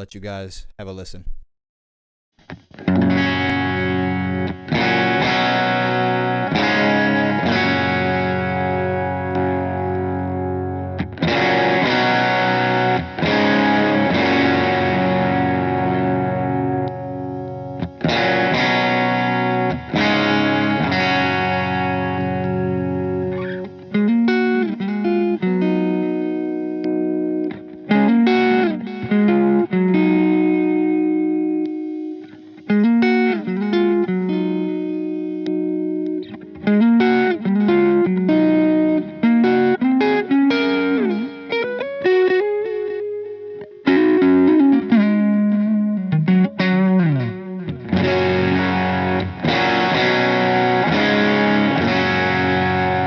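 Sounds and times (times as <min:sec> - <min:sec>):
electric guitar playing: 0:02.5 - 0:53.0.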